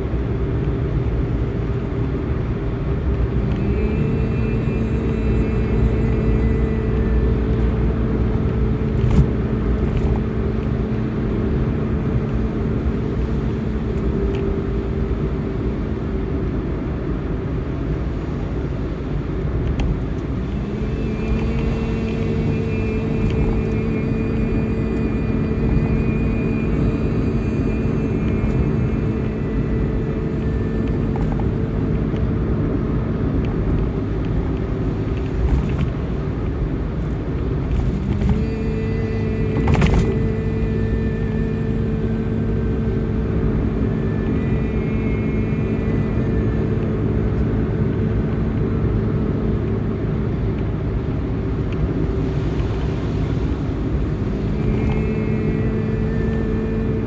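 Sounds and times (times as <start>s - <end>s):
low rumble: 0.0s - 57.0s
long droning tones: 3.1s - 16.7s, 19.9s - 34.1s, 37.4s - 57.0s.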